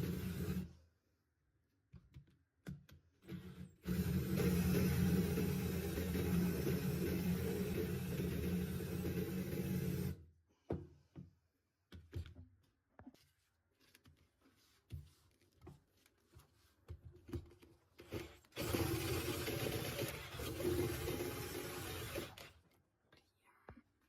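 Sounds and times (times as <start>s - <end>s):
knocks and scrapes of workpieces: 10.6s - 18.6s.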